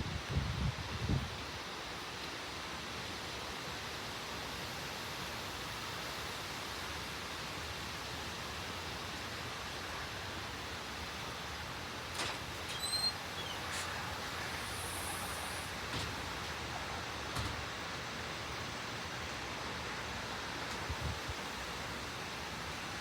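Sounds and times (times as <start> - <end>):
heavy rain: 6.6 - 23.0.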